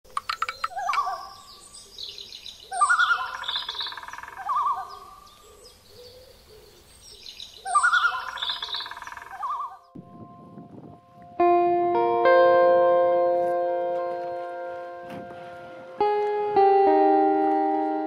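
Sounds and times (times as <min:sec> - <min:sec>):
high bird chirps: 0:00.1 - 0:06.3, 0:07.1 - 0:10.0
bird trilling call: 0:00.1 - 0:10.0.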